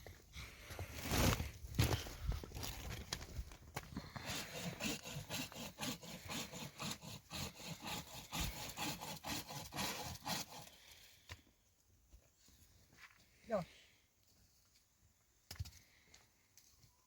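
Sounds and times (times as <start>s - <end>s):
hand saw cutting wood: 4.2s - 11.0s.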